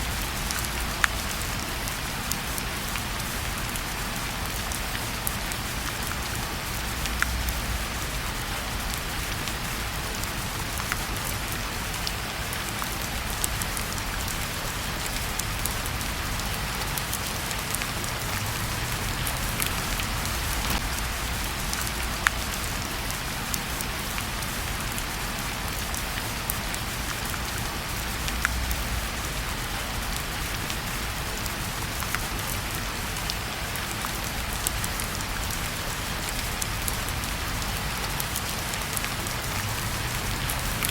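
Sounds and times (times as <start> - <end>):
fire crackling: 0.0 - 31.1
steady rain hiss: 0.0 - 40.9.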